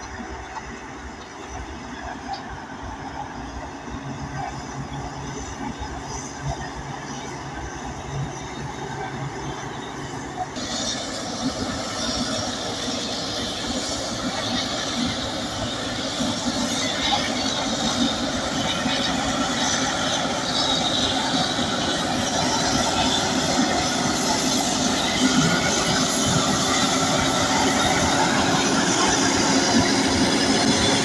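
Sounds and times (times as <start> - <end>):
diesel engine under load: 0.0 - 31.0
steel tracks squealing: 0.0 - 31.0.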